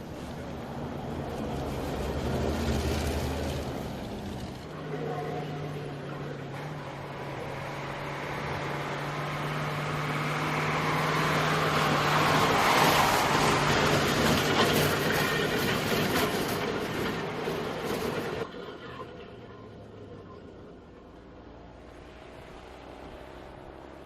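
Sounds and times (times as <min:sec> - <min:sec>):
heavy vehicle driving past: 0:00.0 - 0:15.6, 0:16.6 - 0:24.0.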